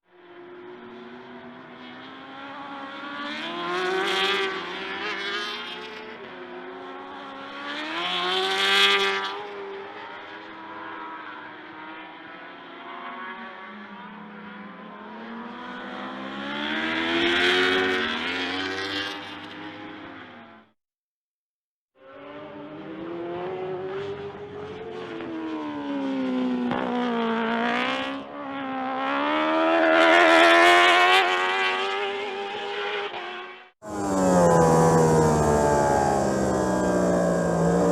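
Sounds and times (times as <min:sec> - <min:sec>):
motorcycle engine revving: 0:29.0 - 0:37.9.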